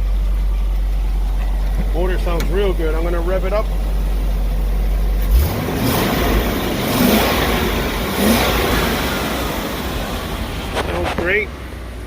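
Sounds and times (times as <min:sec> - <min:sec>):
truck engine idling and revving: 0:00.0 - 0:12.0.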